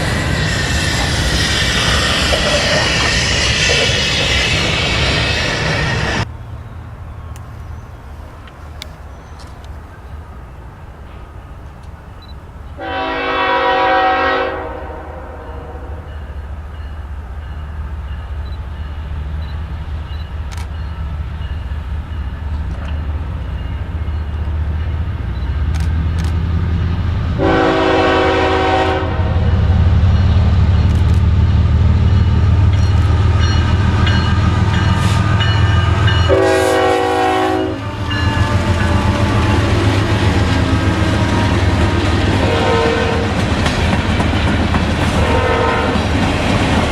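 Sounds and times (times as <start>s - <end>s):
diesel locomotive engine rumble: 0.0s - 46.9s
locomotive air horn: 12.8s - 16.2s, 27.4s - 29.7s, 36.2s - 39.9s, 42.4s - 43.4s, 45.2s - 46.1s.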